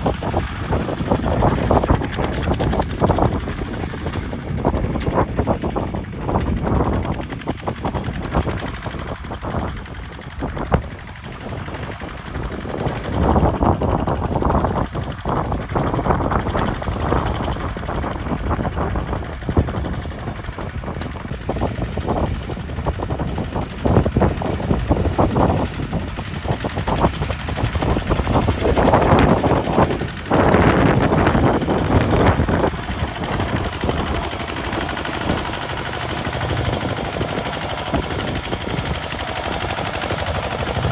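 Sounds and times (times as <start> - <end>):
diesel tractor engine chugging: 0.0 - 40.9.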